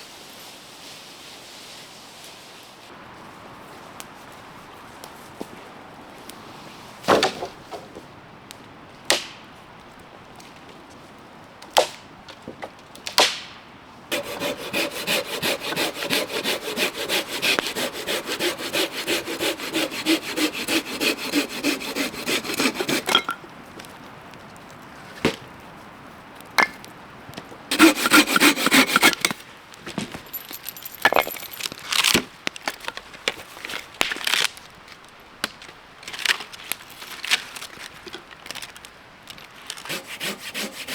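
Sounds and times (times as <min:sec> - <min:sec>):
hand saw cutting wood: 0:14.1 - 0:23.3, 0:27.7 - 0:29.4, 0:39.8 - 0:40.9.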